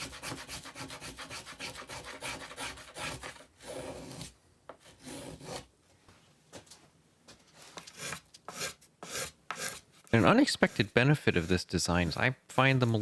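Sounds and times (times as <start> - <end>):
hand tool carving wood: 0.0 - 4.3, 4.9 - 5.6, 7.8 - 13.0.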